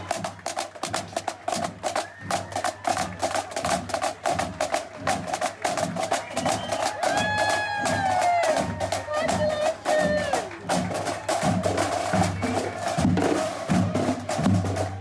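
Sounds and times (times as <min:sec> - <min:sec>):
fast crisp percussion strikes: 0:00.0 - 0:15.0
live band playing: 0:06.7 - 0:15.0.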